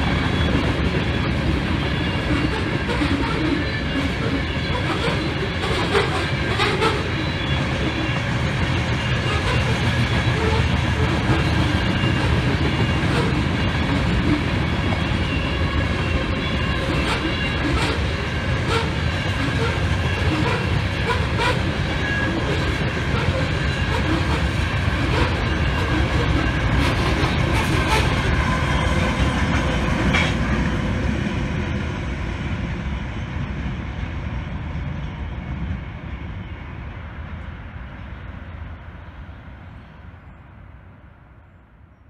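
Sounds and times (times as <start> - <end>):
train wheels clicking over rail joints: 0.0 - 30.9
high ringing of wheels on rail: 0.0 - 41.6
diesel locomotive passing: 0.0 - 42.0.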